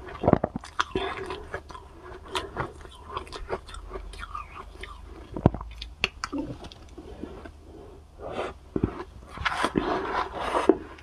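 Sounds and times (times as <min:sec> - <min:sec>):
wet chewing with clicks: 0:00.0 - 0:07.0.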